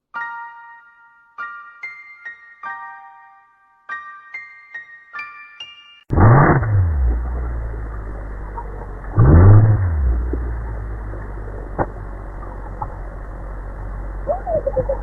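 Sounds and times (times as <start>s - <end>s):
loud surge rising in pitch: 6.1s - 15.0s
low motor hum: 6.1s - 15.0s.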